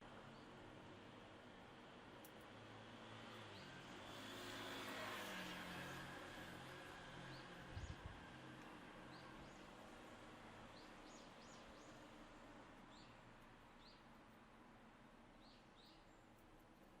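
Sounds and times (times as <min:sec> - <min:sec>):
songbirds chirping: 0:12.8 - 0:14.4, 0:15.0 - 0:17.0.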